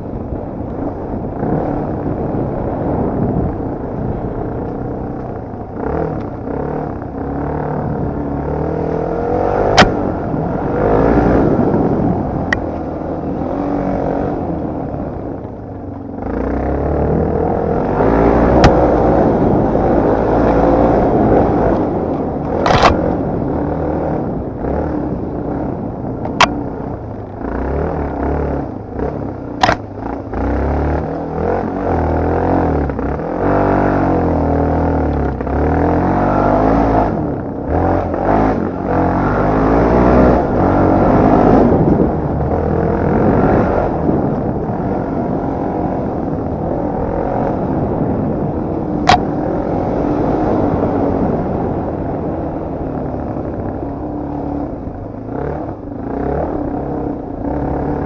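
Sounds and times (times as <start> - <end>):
dirt bike engine revving: 16.2 - 58.0
sharp clicks: 29.6 - 29.9.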